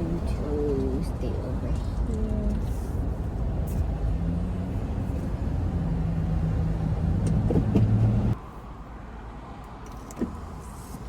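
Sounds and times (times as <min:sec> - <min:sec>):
car engine humming: 0:00.0 - 0:08.4.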